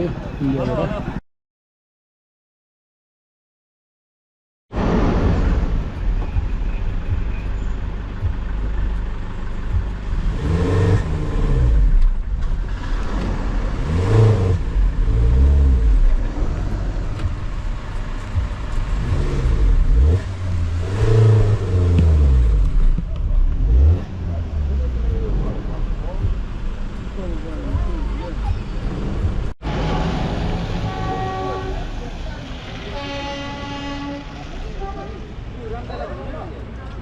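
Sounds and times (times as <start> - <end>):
low road rumble: 0.0 - 1.2, 4.7 - 37.0
vehicle engine revving: 4.8 - 34.2.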